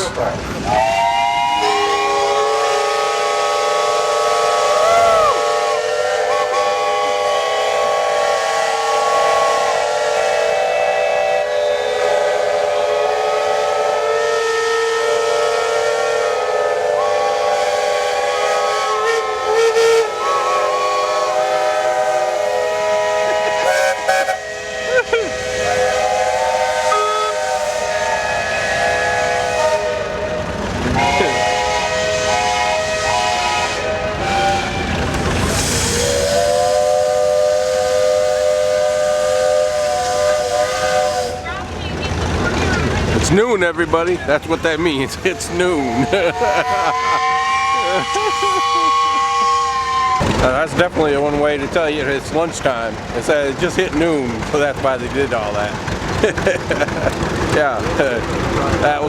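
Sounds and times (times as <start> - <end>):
steam whistles blowing together: 0.6 - 41.5, 45.7 - 50.4.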